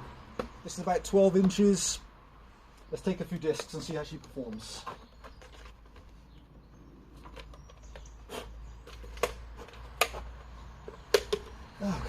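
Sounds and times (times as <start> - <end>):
sharp knocks and clicks: 8.8 - 11.6.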